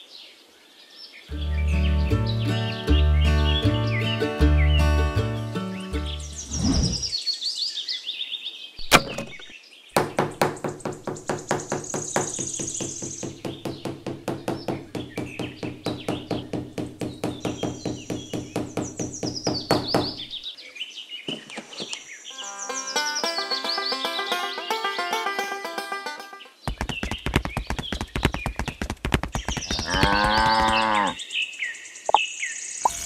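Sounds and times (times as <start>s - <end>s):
birds chirping and whistling: 1.3s - 5.0s, 5.7s - 9.6s, 10.5s - 25.0s, 26.7s - 33.0s
rapid even knocking: 10.0s - 20.3s, 26.6s - 30.9s.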